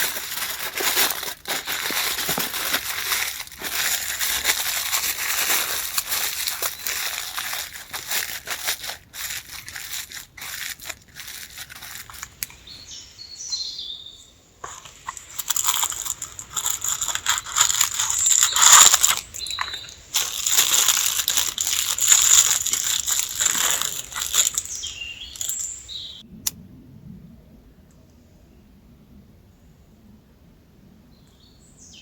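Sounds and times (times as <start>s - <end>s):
crinkling crunching handling noise: 0.0s - 12.9s, 14.6s - 25.8s.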